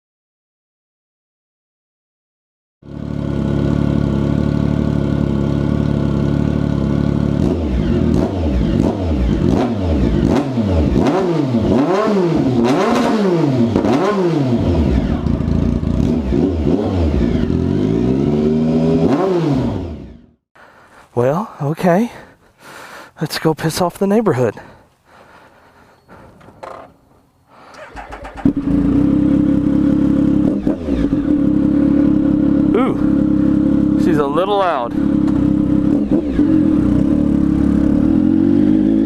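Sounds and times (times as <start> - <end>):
motorcycle engine revving: 2.8 - 20.4, 27.6 - 39.0
exhaust pops: 35.2 - 37.1.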